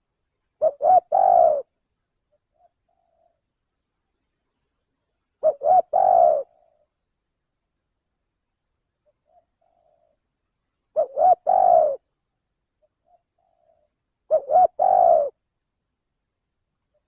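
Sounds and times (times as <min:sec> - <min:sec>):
dove cooing: 0:00.6 - 0:03.4, 0:05.4 - 0:06.9, 0:09.1 - 0:10.2, 0:10.9 - 0:12.1, 0:12.8 - 0:15.4.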